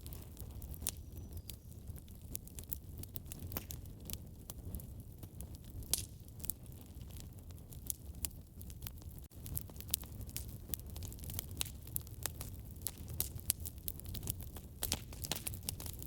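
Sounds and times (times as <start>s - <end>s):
fire crackling and popping: 0.0s - 16.0s
fire rumbling: 0.0s - 16.0s.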